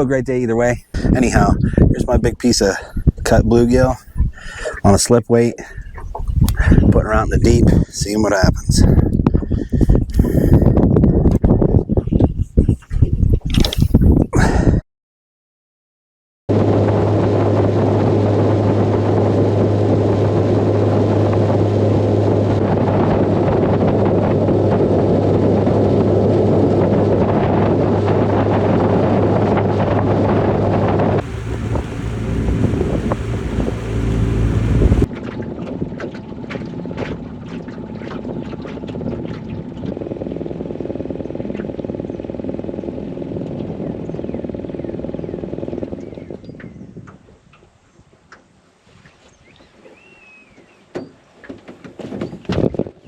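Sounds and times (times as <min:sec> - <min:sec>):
wind on microphone: 0:00.0 - 0:14.8, 0:16.5 - 0:51.1, 0:51.8 - 0:53.0
water lapping: 0:03.7 - 0:07.0, 0:31.2 - 0:43.5
outboard motor running: 0:16.5 - 0:46.7.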